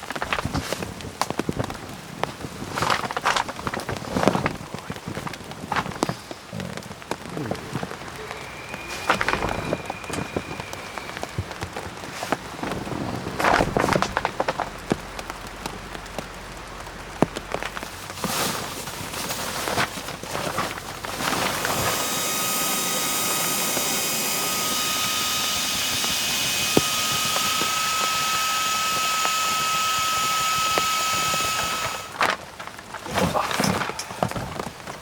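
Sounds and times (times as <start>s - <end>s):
machine whine with loud hiss: 7.1s - 12.9s, 18.0s - 32.3s.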